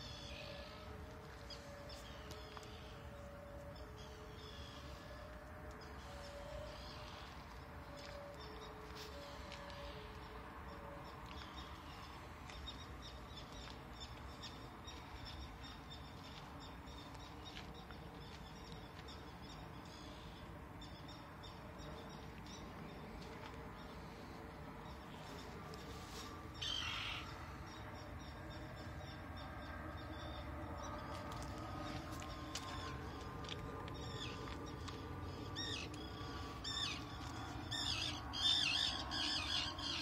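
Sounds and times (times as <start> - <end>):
birds calling and chirping: 11.1 - 40.0.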